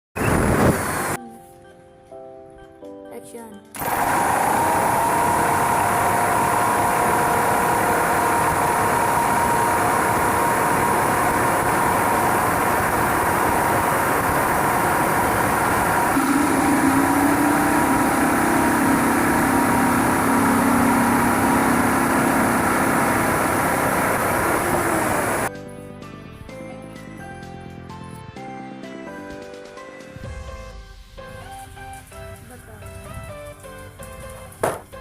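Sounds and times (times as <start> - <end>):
power tool motor running: 3.8 - 25.5.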